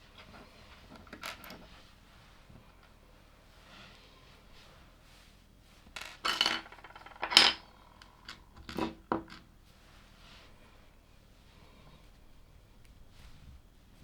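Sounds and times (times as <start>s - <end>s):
plastic bricks clattering: 6.0s - 7.6s.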